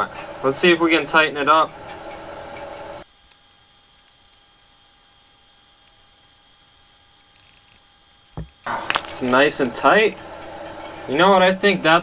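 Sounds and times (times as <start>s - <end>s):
electrical hum with whining: 0.0s - 12.0s
faint ticks: 3.0s - 8.8s
loud hiss: 3.0s - 10.1s.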